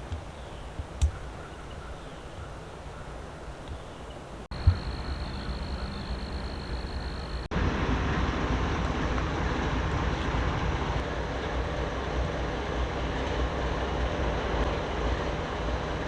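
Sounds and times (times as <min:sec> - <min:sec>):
train rolling on tracks: 0:04.5 - 0:16.0.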